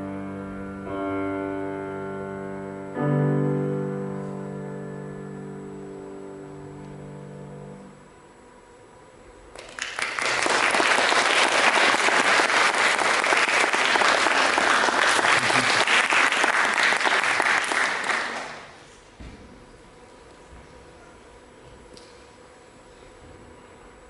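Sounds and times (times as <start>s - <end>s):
audience applauding: 9.5s - 18.8s.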